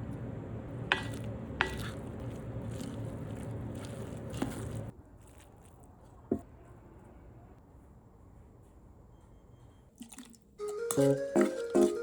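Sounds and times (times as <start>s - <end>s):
steady background hum: 0.0s - 4.9s
utensils clinking: 10.6s - 12.0s.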